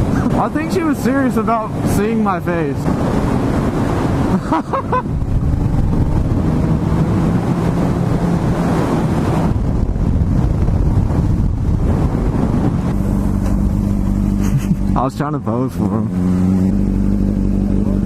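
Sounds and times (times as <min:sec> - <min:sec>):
wind rush on microphone: 0:00.0 - 0:18.0
motorcycle engine running: 0:05.1 - 0:08.4, 0:09.5 - 0:18.0.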